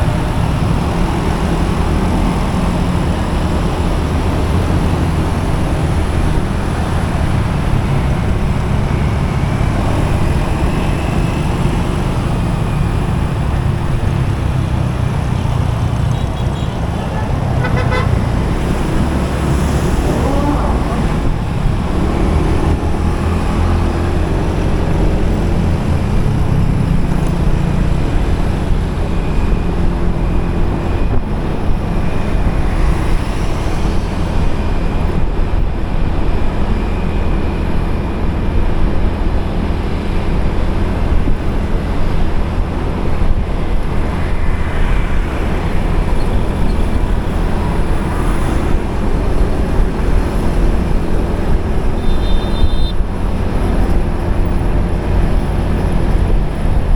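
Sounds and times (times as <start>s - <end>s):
motorcycle road noise rumble: 0.0s - 56.9s.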